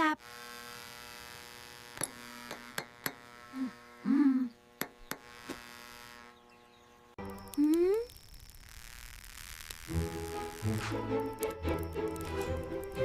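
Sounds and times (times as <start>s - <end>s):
steady electric buzz: 0.0s - 13.0s
sharp clicks: 10.7s - 13.0s.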